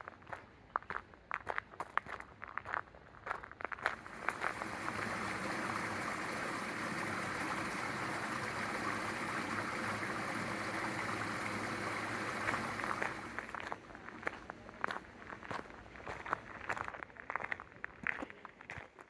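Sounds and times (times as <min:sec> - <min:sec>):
running water rushing: 0:03.9 - 0:13.7.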